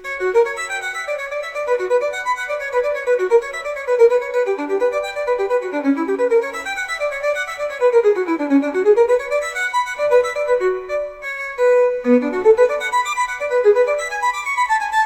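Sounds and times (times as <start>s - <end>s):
solo violin fast runs: 0.0s - 15.0s.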